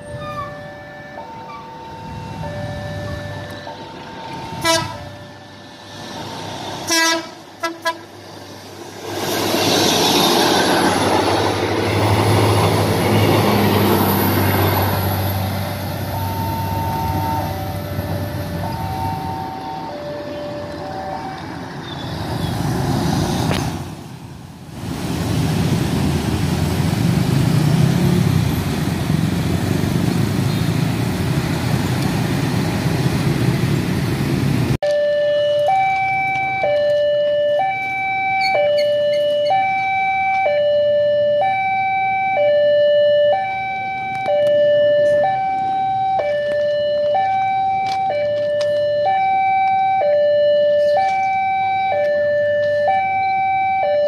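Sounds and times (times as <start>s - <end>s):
train rumbling past: 0.0s - 34.8s
truck: 0.0s - 54.0s
train horn toots: 4.5s - 5.2s, 6.8s - 8.1s
motorcycles: 25.1s - 34.8s.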